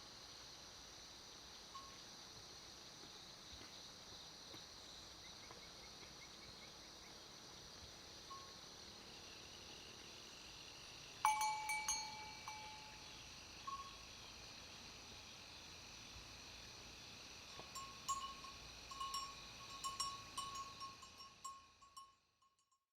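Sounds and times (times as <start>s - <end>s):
faint insect drone: 0.0s - 22.9s
bright metallic rings: 11.2s - 14.0s, 17.6s - 22.7s.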